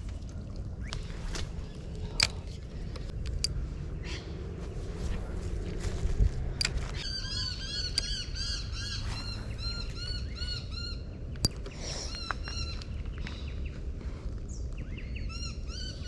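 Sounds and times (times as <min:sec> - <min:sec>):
bird calling harshly: 0:07.0 - 0:13.6.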